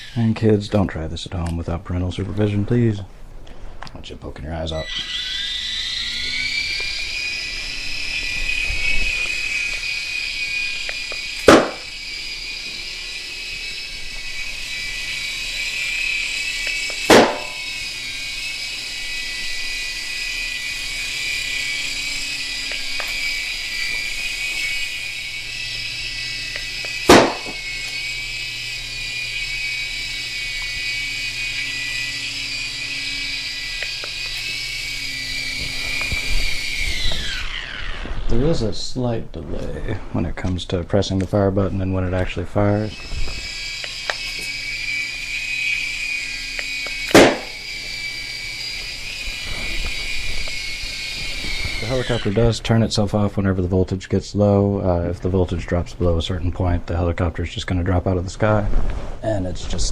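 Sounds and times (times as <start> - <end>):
toy helicopter rotors whining: 0.0 - 58.7
balloons popping: 10.9 - 12.0, 16.9 - 17.6, 26.8 - 27.6, 47.0 - 47.6.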